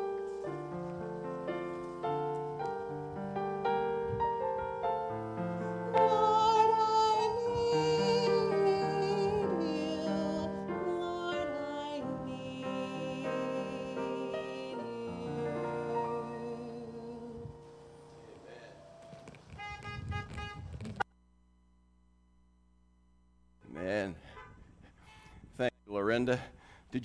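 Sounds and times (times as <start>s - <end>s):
piano accompaniment: 0.0s - 19.6s
woman singing a hymn: 5.2s - 18.5s.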